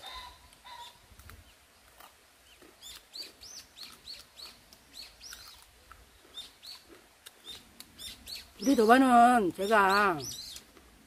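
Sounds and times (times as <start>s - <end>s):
crisp rice being chewed: 0.0s - 8.1s, 10.4s - 11.0s
bird chirping: 2.4s - 10.7s.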